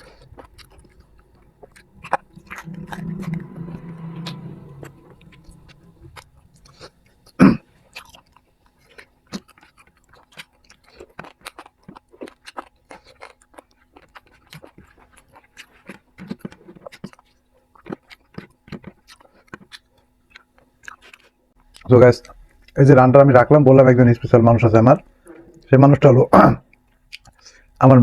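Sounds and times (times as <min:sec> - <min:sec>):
chewing and crunching food: 0:07.9 - 0:23.3, 0:25.1 - 0:27.9.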